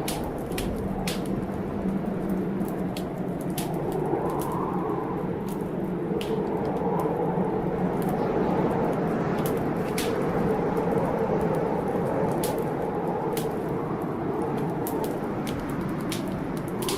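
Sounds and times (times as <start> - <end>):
storm rumble: 0.0 - 16.9
wood fire crackling and popping: 0.0 - 16.9.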